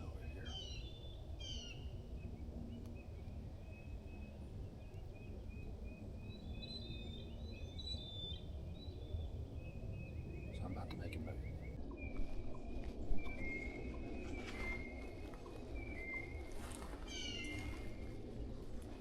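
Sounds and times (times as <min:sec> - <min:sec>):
low outdoor rumble: 0:00.0 - 0:19.0
small birds chirping and singing: 0:00.0 - 0:19.0.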